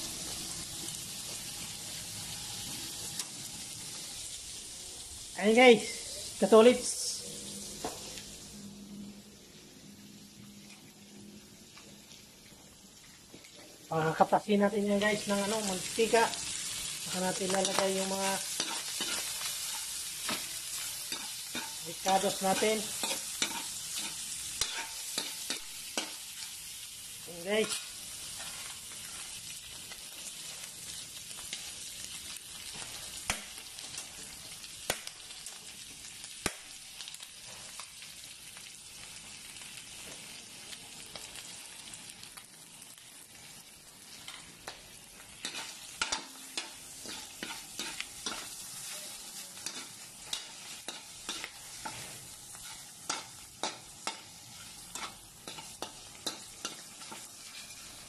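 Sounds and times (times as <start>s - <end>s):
pork fat sizzling in a wok: 0.0s - 58.0s
metal spoon scraping a wok: 17.6s - 26.2s, 45.4s - 58.0s.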